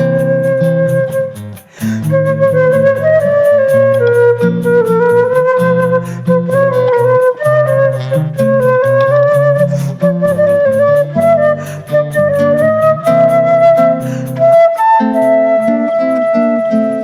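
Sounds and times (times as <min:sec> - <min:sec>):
flute melody: 0:00.0 - 0:17.0
lower accompanying notes: 0:00.0 - 0:17.0.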